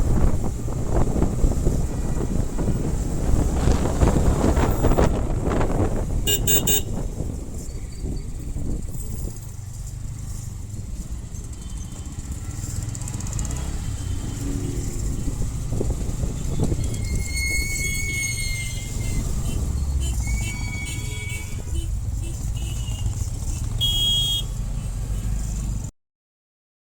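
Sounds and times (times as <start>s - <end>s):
wind noise: 0.0s - 12.2s, 13.2s - 23.4s
motorcycle engine rumble: 0.0s - 25.9s.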